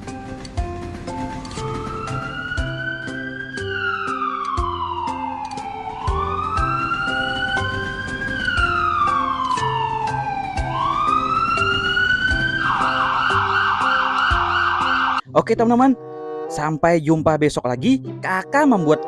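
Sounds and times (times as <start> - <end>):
background music with steady beat: 0.0 - 19.0
emergency siren wailing: 1.0 - 15.3.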